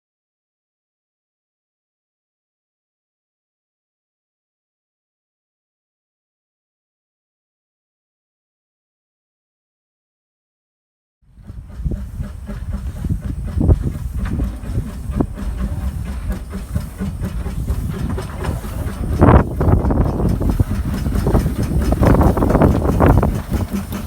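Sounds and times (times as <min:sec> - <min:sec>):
steam train running: 0:11.3 - 0:24.0
wind rumble on microphone: 0:11.3 - 0:24.0
steam hissing: 0:11.5 - 0:24.0.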